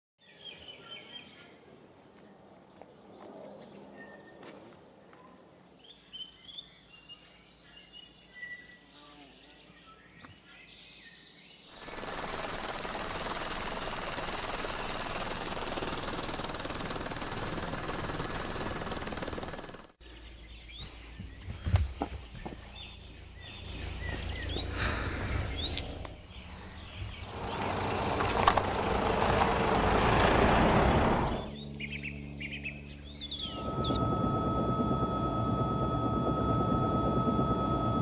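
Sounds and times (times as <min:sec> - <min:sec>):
birds chirping: 0:00.2 - 0:38.0
low rumble: 0:23.1 - 0:32.2
steady hum with high tone: 0:23.4 - 0:28.5, 0:31.4 - 0:38.0.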